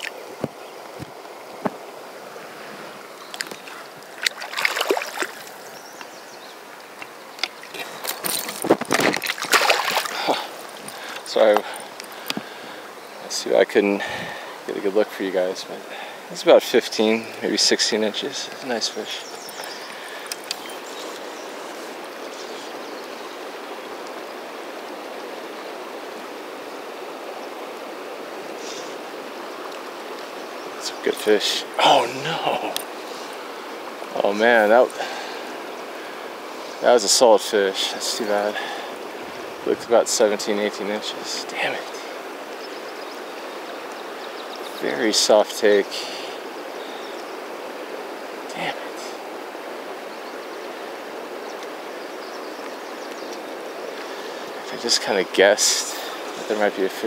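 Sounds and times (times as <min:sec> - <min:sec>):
river current running: 0:00.0 - 0:57.0
fish splashing at water surface: 0:04.2 - 0:05.6, 0:08.2 - 0:10.5.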